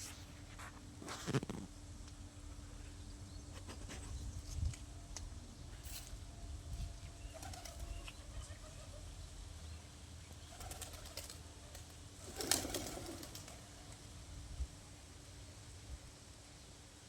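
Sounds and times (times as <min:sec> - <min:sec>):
doves cooing: 0:07.3 - 0:09.1, 0:10.4 - 0:14.0.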